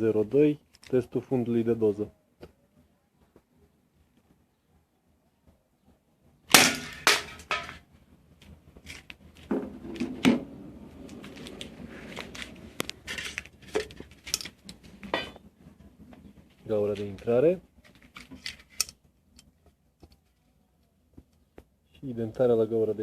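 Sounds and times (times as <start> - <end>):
airsoft revolver shot: 6.5 - 7.4
handling clicks and knocks: 6.5 - 7.8, 8.4 - 20.4.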